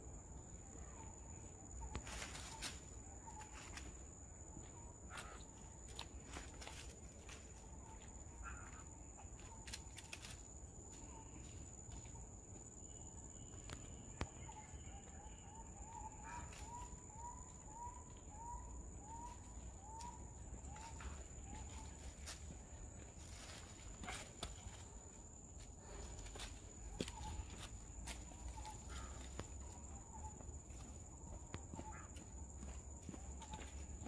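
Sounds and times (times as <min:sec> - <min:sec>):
high insect whine: 0:00.0 - 0:34.0
dry leaves rustling: 0:20.8 - 0:25.1.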